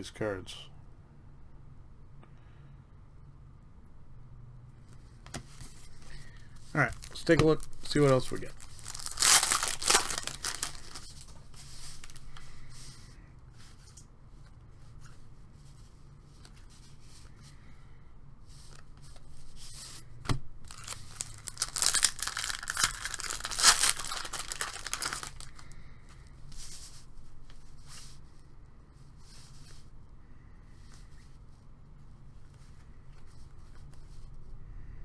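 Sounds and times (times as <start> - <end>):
cards rustling: 5.3 - 12.6, 20.3 - 25.7
wrapper tearing and crinkling: 6.8 - 12.4, 20.7 - 25.7.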